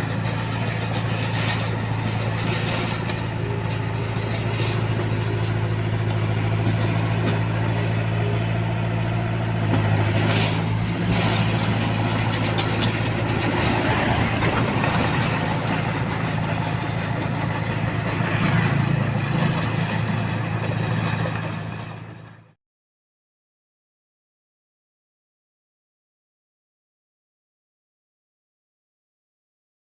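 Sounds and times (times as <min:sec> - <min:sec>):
bulldozer diesel engine running: 0:00.0 - 0:22.6.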